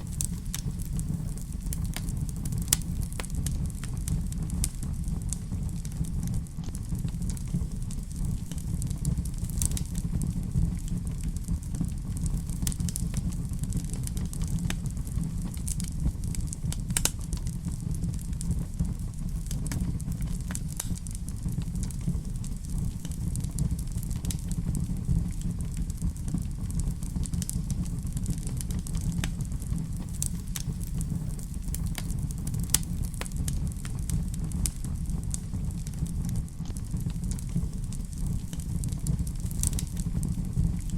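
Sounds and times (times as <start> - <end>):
fire crackling in fireplace: 0.0 - 40.9.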